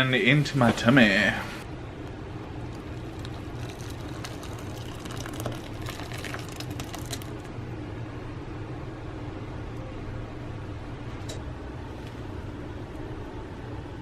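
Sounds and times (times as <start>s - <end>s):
steady low hum: 0.0s - 14.0s
hot dogs crackling in frying pan: 2.6s - 7.5s.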